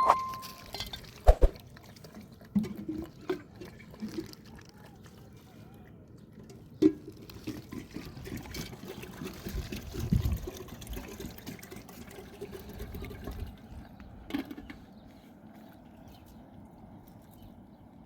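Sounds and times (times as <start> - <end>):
water pouring and splashing: 0.0 - 5.4, 6.4 - 14.5.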